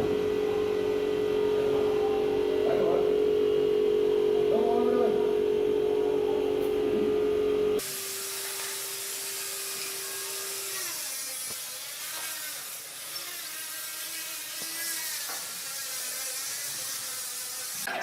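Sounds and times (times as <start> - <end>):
power tool humming: 7.3 - 17.9.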